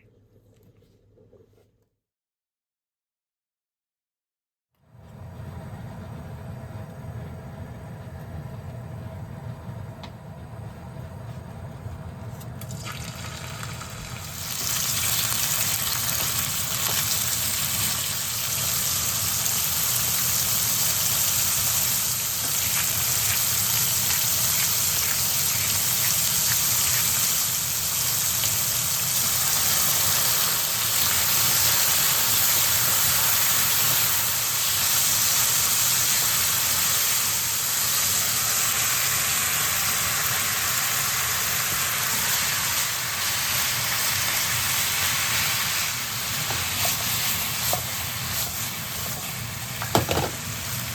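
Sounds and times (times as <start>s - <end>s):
meat sizzling in oil: 12.7s - 50.9s.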